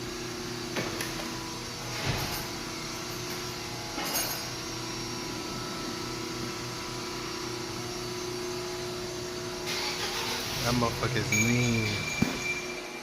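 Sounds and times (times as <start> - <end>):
workshop machine hum: 0.0 - 13.0
sharp metallic clink: 11.3 - 13.0.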